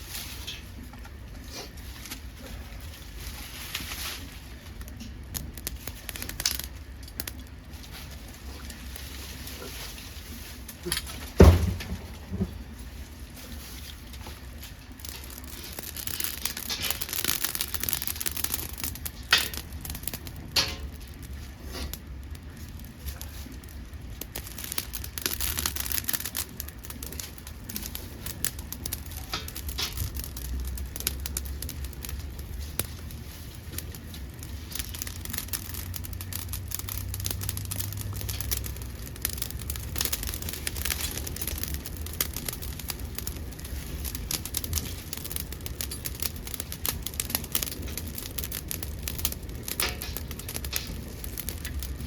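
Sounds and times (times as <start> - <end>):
stove low rumble: 0.0 - 52.0
wood fire crackling and popping: 0.0 - 52.0.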